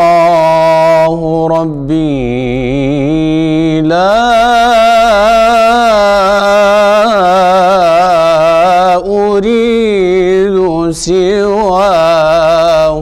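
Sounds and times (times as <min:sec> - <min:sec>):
man singing devotional chant: 0:00.0 - 0:13.0.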